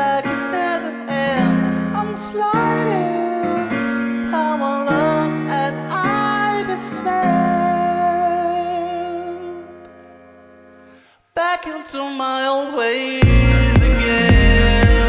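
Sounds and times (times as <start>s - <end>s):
person singing: 0.0s - 10.0s, 11.4s - 15.0s
keyboard chords: 13.2s - 15.0s.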